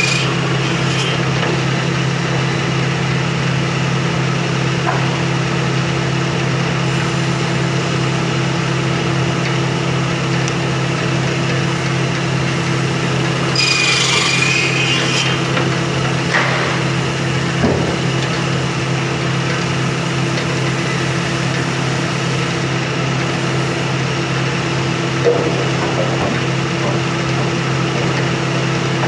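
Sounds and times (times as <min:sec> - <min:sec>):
saw cutting wood with high whine: 0:00.0 - 0:03.6, 0:11.2 - 0:25.3
sawmill machinery humming: 0:00.0 - 0:29.0
wooden knocks: 0:25.2 - 0:28.3.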